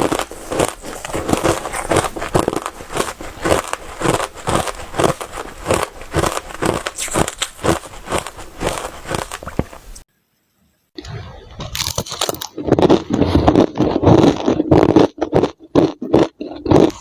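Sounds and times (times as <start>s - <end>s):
crunching crushed ice: 0.0s - 10.0s, 11.8s - 17.0s.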